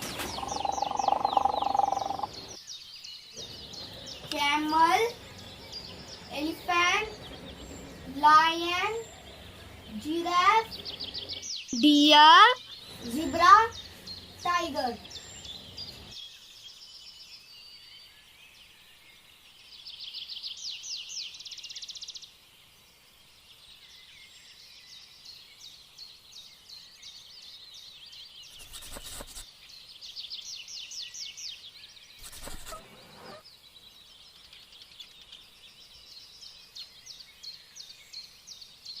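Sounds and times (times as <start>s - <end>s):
dense chirping trill: 0.0s - 2.6s
small birds chirping: 0.0s - 39.0s.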